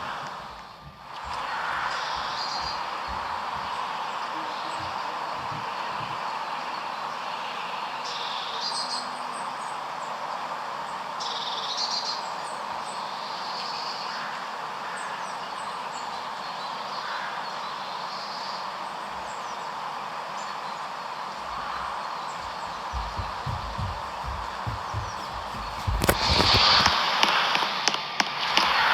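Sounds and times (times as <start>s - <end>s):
small birds chirping: 0.4s - 7.4s, 17.6s - 26.9s
low bumps: 21.4s - 27.0s.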